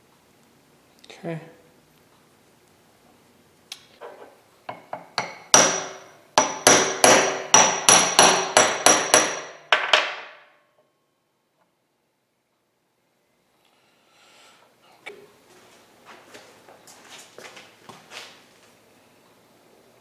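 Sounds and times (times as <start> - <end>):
hammer striking metal: 4.7 - 10.5.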